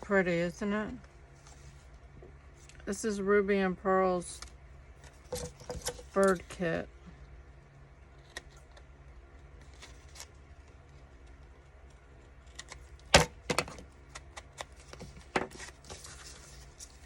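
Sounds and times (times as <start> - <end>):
paper being handled: 14.8 - 17.0.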